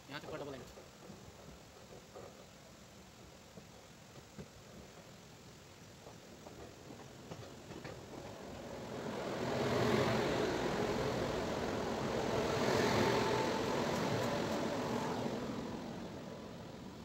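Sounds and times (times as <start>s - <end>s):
electric locomotive passing: 6.0s - 17.0s.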